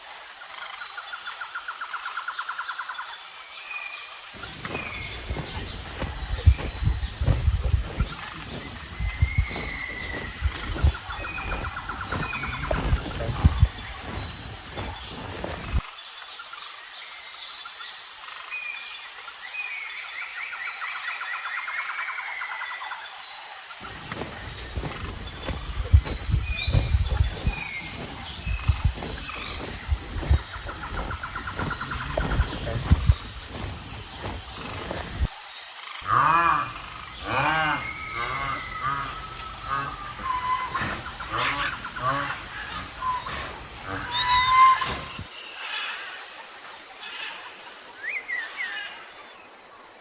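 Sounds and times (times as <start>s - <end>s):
insects chirping: 0.0s - 17.4s, 23.4s - 50.0s
high-pitched insect whine: 0.0s - 49.4s
birds calling: 4.4s - 15.8s, 23.8s - 35.3s, 36.0s - 45.3s.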